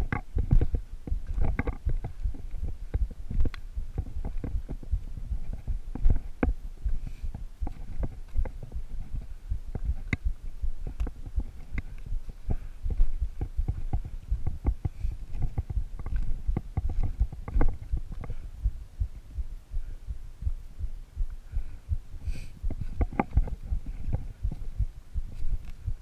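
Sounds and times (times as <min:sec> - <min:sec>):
microphone jostling: 0:00.0 - 0:26.0.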